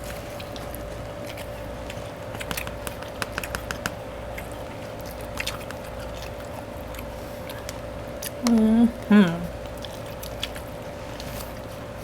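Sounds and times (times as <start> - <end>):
close chewing mouth sounds: 0.0 - 12.0
wet mouth clicks and smacks: 1.4 - 8.7.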